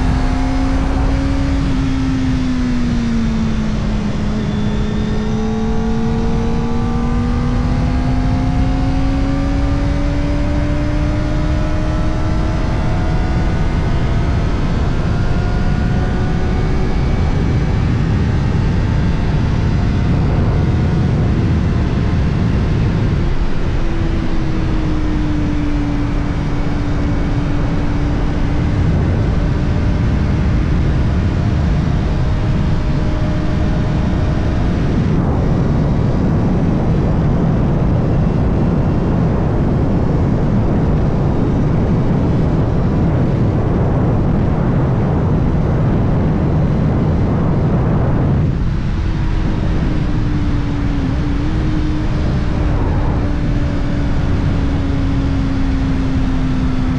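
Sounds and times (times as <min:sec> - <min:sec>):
motorcycle engine running: 0:00.0 - 0:36.0, 0:47.9 - 0:56.9
wind and road rush: 0:00.0 - 0:56.9.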